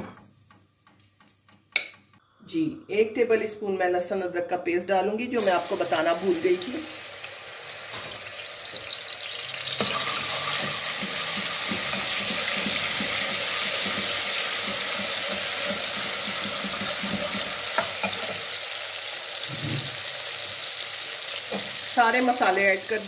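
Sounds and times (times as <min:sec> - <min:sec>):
paste sizzling in hot oil: 0:05.4 - 0:23.0
metal spoon scraping a pot: 0:09.5 - 0:18.4.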